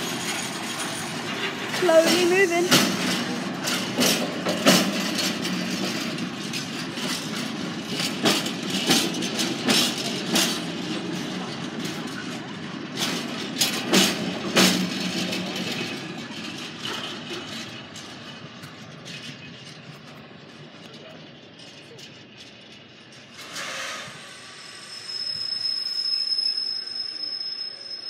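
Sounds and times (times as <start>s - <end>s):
train wheels rumbling on rail: 0.0s - 28.0s
wheelsets clunking over track: 0.2s - 22.6s.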